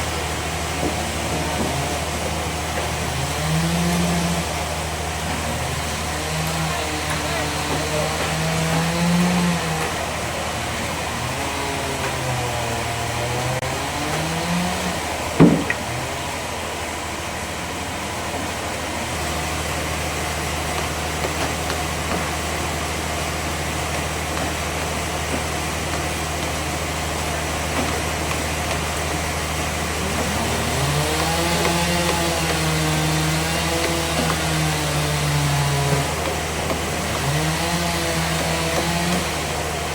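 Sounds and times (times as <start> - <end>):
bandsaw sawmill machinery drone: 0.0 - 39.9
sharp knock: 15.4 - 15.9.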